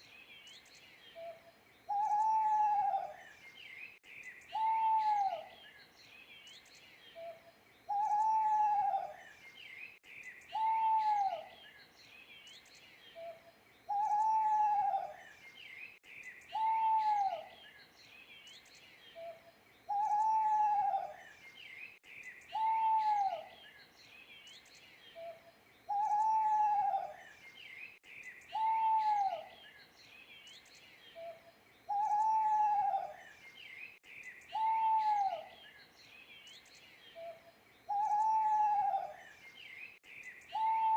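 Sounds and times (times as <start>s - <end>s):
small birds chirping: 0.0s - 40.9s
owl hooting: 1.9s - 3.2s, 4.5s - 5.5s, 7.9s - 9.2s, 10.5s - 11.5s, 13.2s - 15.2s, 16.5s - 17.5s, 19.2s - 21.2s, 22.5s - 23.5s, 25.2s - 27.2s, 28.5s - 29.5s, 31.2s - 33.2s, 34.5s - 35.6s, 37.2s - 39.2s, 40.5s - 40.9s.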